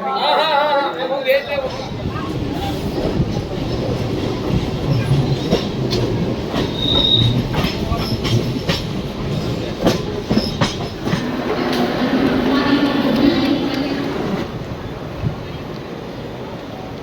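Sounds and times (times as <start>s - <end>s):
train rumbling on track: 1.4s - 17.0s
wheel clacks and knocks: 3.0s - 14.3s
high wheel squeal: 6.6s - 8.0s.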